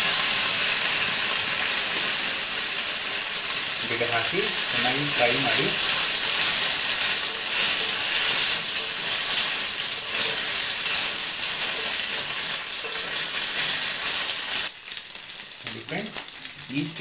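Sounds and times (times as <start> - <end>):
food sizzling in hot oil: 0.0 - 17.0
steel spoon scraping a pan: 1.7 - 14.7.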